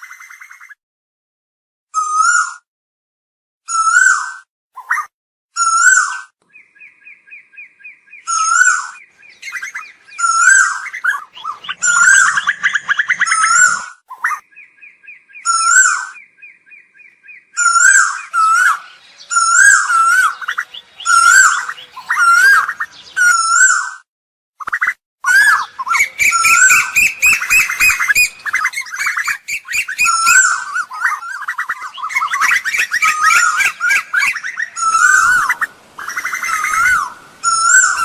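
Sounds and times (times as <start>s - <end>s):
koels calling: 8.2s - 14.6s, 17.3s - 24.0s, 25.2s - 38.0s.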